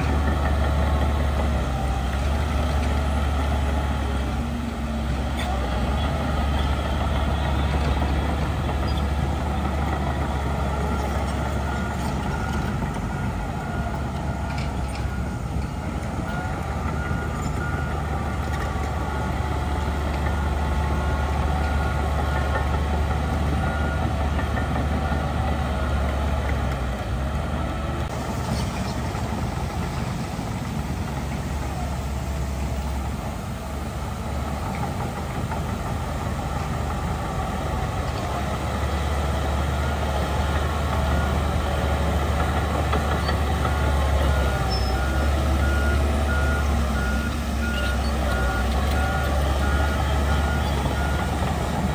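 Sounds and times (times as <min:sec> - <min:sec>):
heavy diesel machinery running: 0:00.0 - 0:51.9
reversing alarm beeping: 0:42.8 - 0:51.9.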